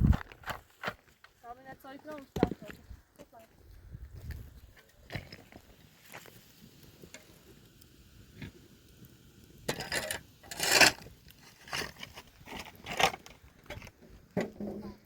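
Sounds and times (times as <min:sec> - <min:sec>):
shovel scraping stony soil: 0:09.7 - 0:14.0.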